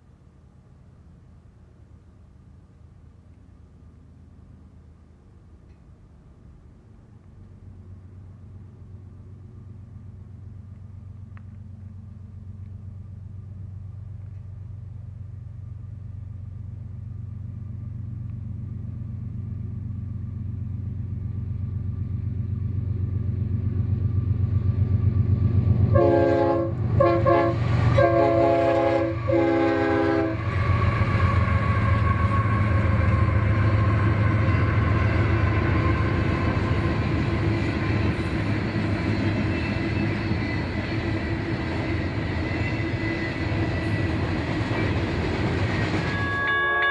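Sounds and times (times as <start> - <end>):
diesel locomotive rumble: 0.0 - 46.9
train air horn blasts: 25.9 - 36.4, 46.1 - 46.9.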